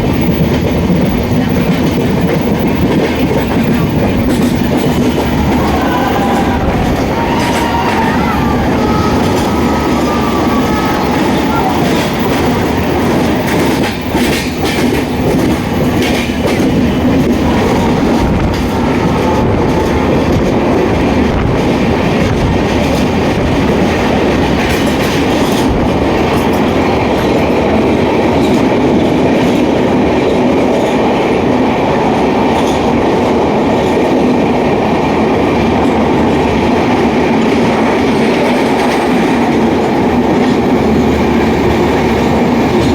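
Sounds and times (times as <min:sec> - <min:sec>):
clacks over rail joints: 0:00.0 - 0:31.6
train wheels rumbling on rails: 0:00.0 - 0:42.9.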